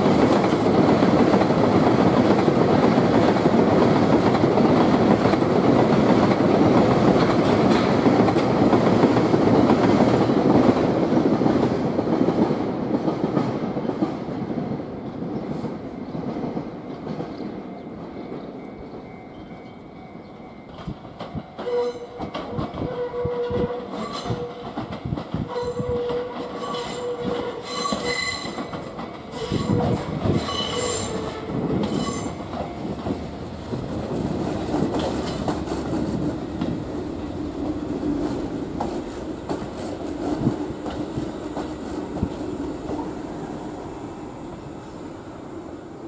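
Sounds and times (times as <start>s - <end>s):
train rolling rumble: 0.0s - 46.0s
train wheels clacking over points: 20.6s - 33.3s
train wheels squealing: 21.6s - 24.6s, 25.5s - 32.5s.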